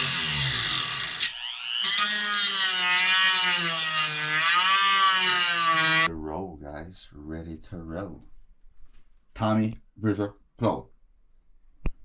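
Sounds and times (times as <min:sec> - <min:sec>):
rotary tool cutting: 0:00.0 - 0:06.1.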